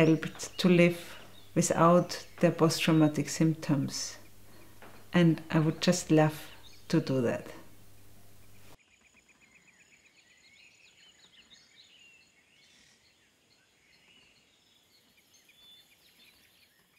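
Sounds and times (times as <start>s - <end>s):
low hiss: 0.0s - 8.8s
birds chirping and trilling: 0.0s - 16.9s.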